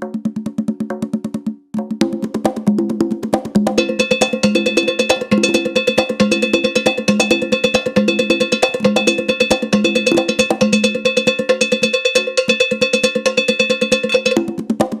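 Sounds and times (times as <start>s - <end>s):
hand drum beats: 0.0s - 15.0s
iron bell struck in fast pattern: 3.8s - 14.6s.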